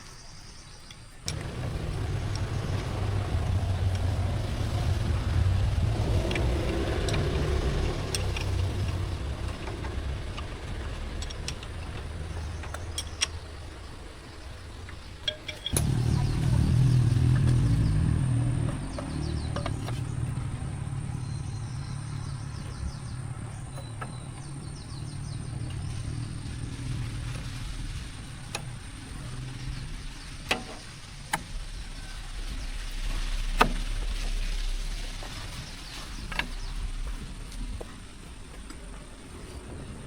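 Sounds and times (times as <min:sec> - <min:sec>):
low engine rumble: 0:00.0 - 0:40.0.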